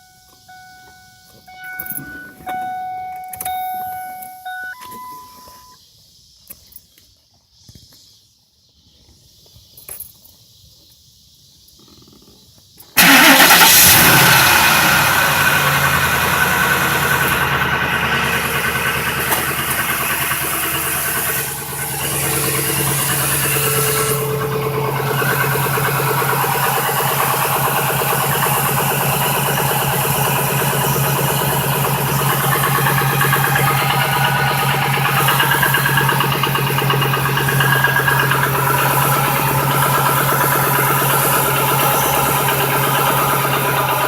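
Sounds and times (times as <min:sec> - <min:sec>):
engine starting and idling: 0:00.5 - 0:05.7, 0:13.0 - 0:44.0
engine knock: 0:13.0 - 0:44.0.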